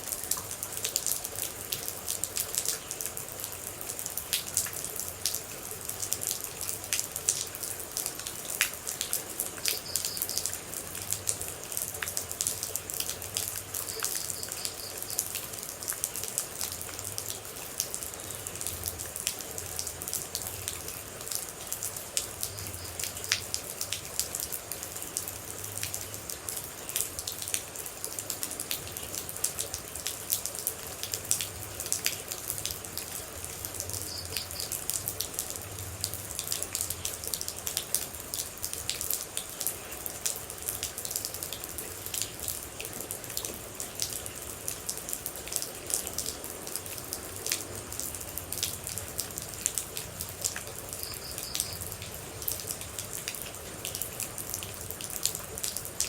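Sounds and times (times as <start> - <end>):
steady rain: 0.0 - 56.0
water droplets dripping: 31.0 - 39.6.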